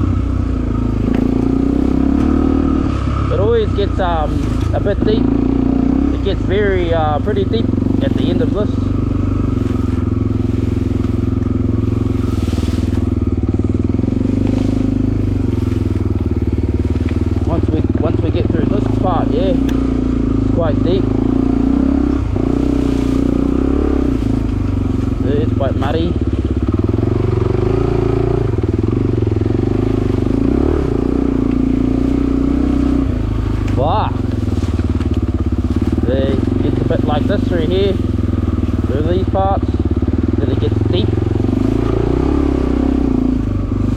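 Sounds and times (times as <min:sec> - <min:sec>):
dirt bike engine running: 0:00.0 - 0:43.9.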